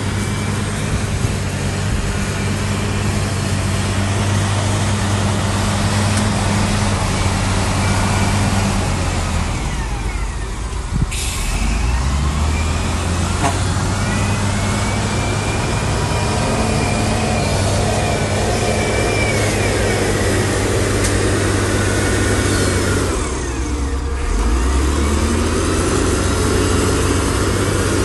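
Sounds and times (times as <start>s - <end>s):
diesel machinery droning: 0.0s - 28.0s
hiss: 11.1s - 11.8s
thin squealing whines: 11.4s - 25.8s.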